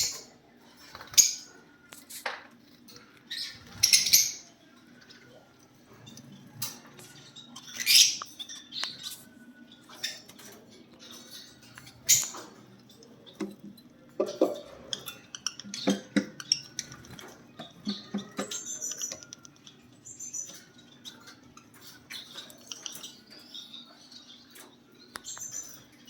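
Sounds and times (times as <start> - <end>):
lovebirds chirping: 0.0 - 26.0
clicks taps and rattles: 11.6 - 19.8.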